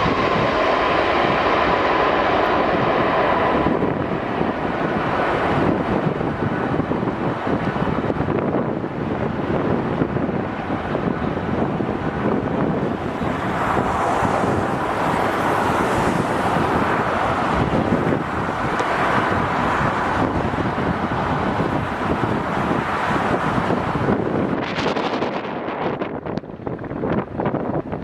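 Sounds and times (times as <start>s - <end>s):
jet engine noise: 0.0s - 28.0s
strong wind buffeting microphone: 0.0s - 28.0s.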